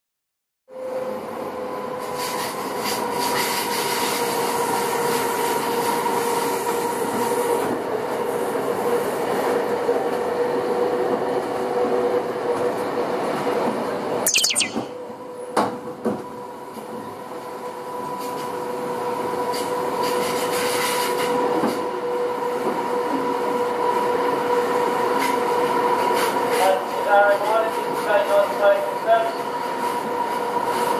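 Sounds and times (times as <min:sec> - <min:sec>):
high falling screech: 0:14.3 - 0:14.9.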